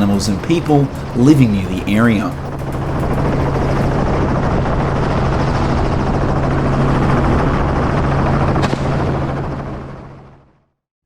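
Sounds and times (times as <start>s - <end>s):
helicopter rotor and engine: 0.0s - 10.8s
sharp crack: 8.6s - 9.0s.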